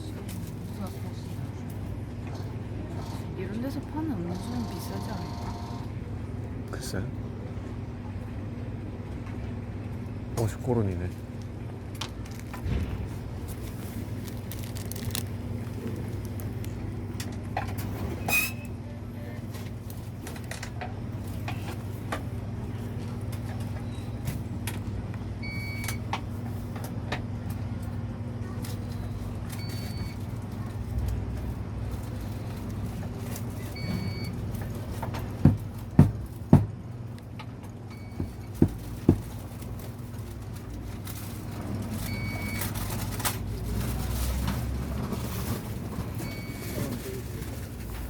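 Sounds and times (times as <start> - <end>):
low mechanical hum: 0.0 - 48.0.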